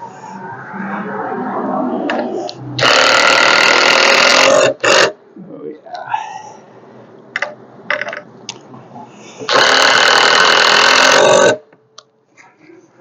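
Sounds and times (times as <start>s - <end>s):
power drill driving screw into wood: 2.8s - 4.5s, 9.5s - 11.6s.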